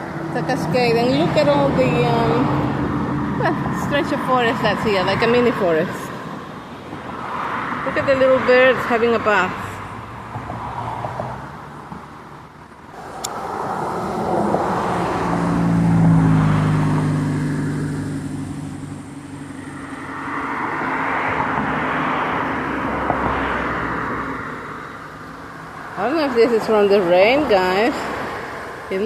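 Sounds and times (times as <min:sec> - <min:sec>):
vehicle engine hum passing: 0:00.0 - 0:29.0
tyres hissing on road: 0:12.9 - 0:15.6.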